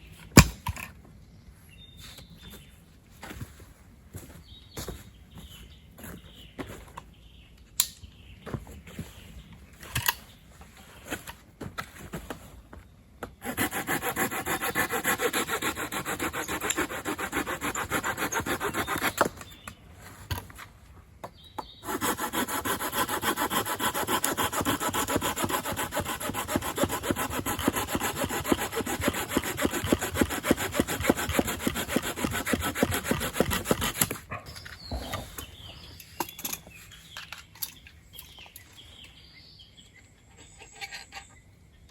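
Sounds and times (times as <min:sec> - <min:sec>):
hand saw cutting firewood: 0:13.4 - 0:19.5, 0:21.8 - 0:34.2.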